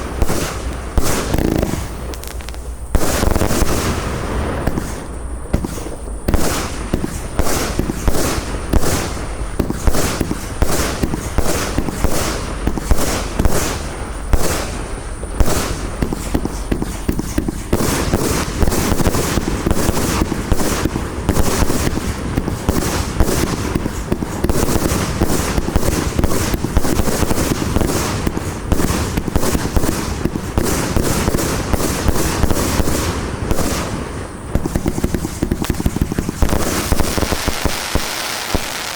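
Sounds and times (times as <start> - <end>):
fireworks launches and bursts: 0.0 - 38.9.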